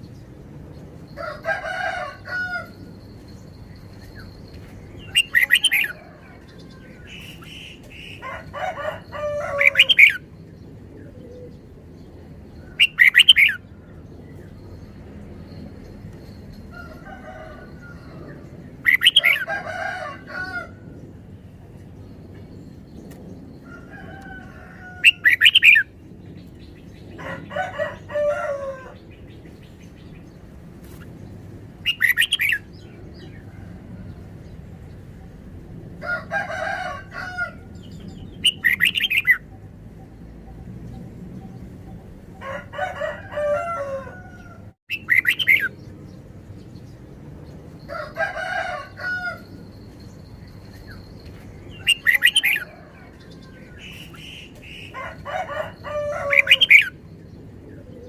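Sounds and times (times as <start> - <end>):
bulbuls singing chirpy phrases: 4.9 - 10.3, 44.9 - 45.7.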